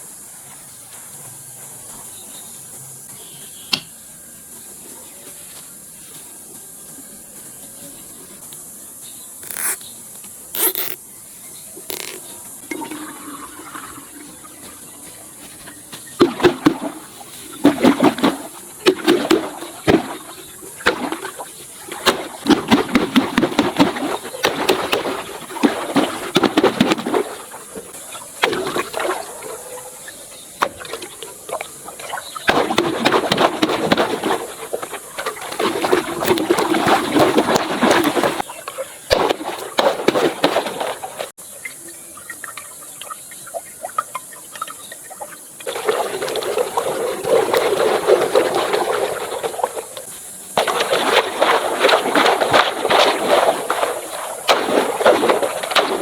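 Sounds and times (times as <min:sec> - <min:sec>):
water gushing and sloshing: 0:11.9 - 0:56.0
steady hiss: 0:48.8 - 0:51.3.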